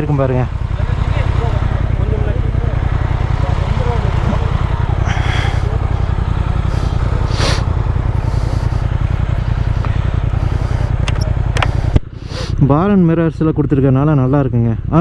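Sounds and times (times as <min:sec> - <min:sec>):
motorcycle engine idling: 0:00.0 - 0:15.0
hissing whooshes: 0:02.7 - 0:12.6.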